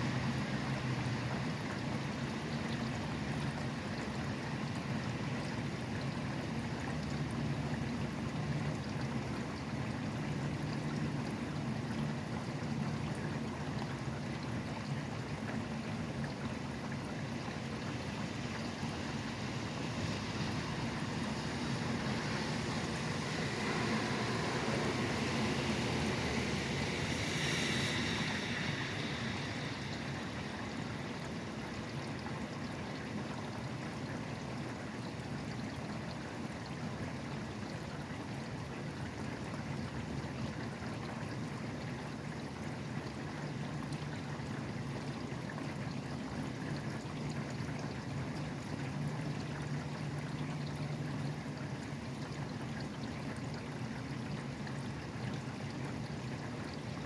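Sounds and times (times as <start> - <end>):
highway traffic rumble: 0.0 - 57.0
rain falling: 19.1 - 31.6.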